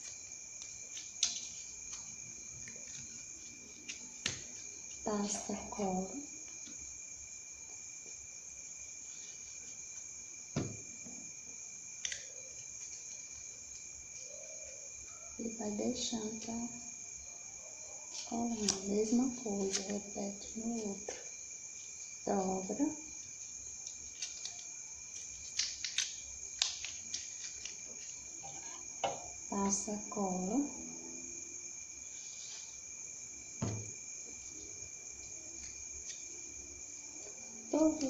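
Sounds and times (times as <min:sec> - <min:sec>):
crickets trilling: 0:00.0 - 0:38.0
dull thump: 0:10.5 - 0:11.2, 0:33.6 - 0:34.1
paper being folded: 0:18.1 - 0:21.1, 0:23.8 - 0:28.4.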